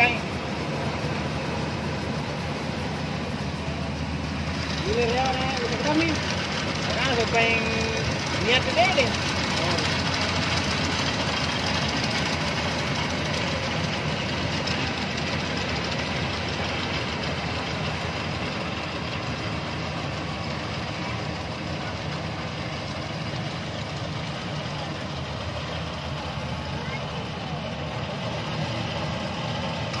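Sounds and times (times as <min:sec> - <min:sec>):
combine harvester engine running: 0:00.0 - 0:30.0.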